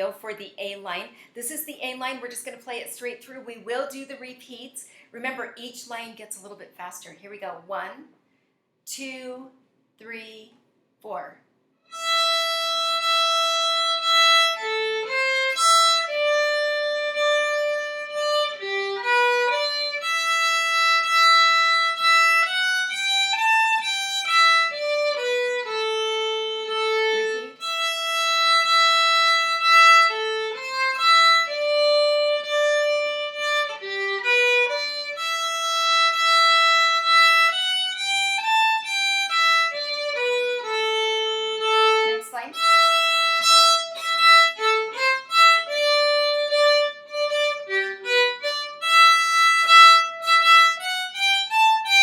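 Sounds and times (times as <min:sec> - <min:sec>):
bowed string instrument melody: 0:11.9 - 0:52.0.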